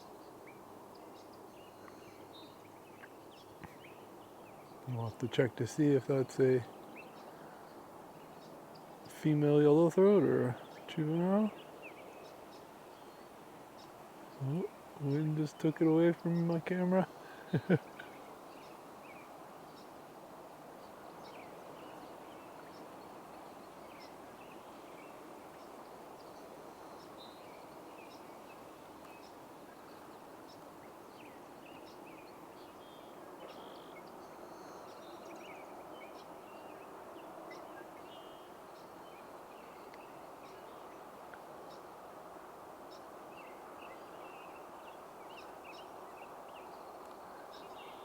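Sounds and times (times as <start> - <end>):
distant birds chirping: 0.4 - 19.9.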